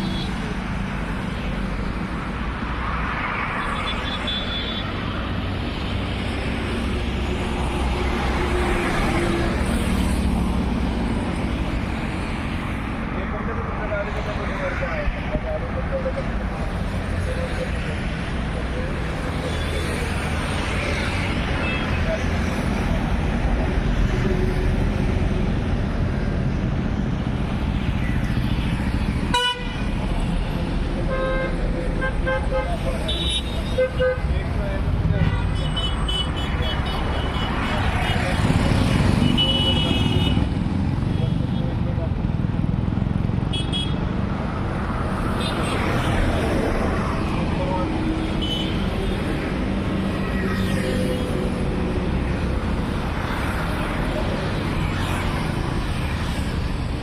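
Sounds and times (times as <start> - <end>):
road noise: 0.0 - 57.0.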